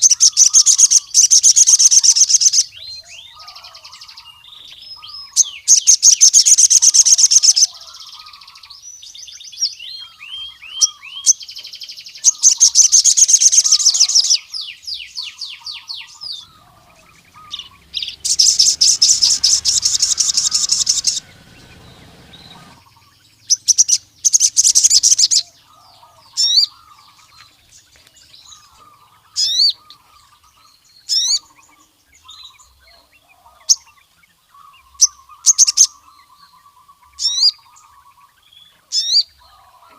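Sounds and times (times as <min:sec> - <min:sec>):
soft chittering calls: 0:00.0 - 0:09.1, 0:09.9 - 0:39.8
sharp whistled bird notes: 0:16.1 - 0:22.9
bird rattling trills: 0:16.2 - 0:23.0.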